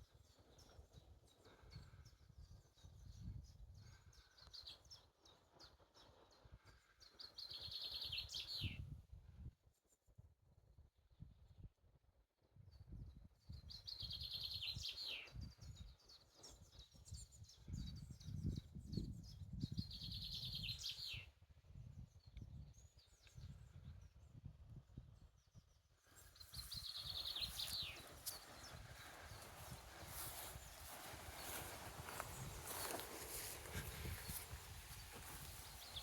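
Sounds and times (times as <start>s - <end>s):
faint birds chirping: 13.5s - 36.0s.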